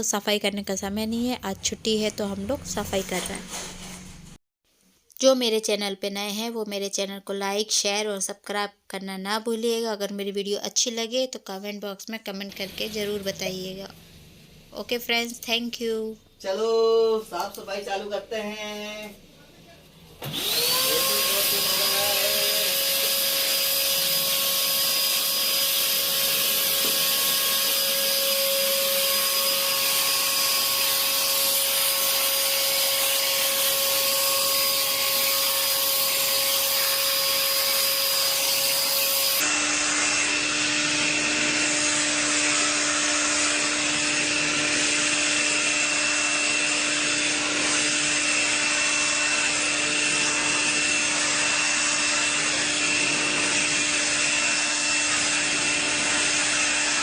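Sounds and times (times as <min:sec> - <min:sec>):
vacuum cleaner running: 0:12.5 - 0:13.4, 0:20.0 - 0:57.0.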